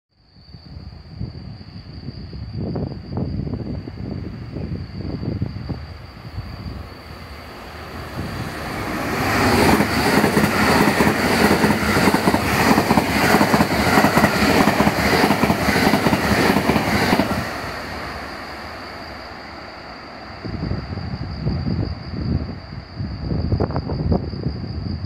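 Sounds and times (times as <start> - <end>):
electric train passing at speed: 0.3 - 25.0
train wheels clattering: 8.2 - 17.6.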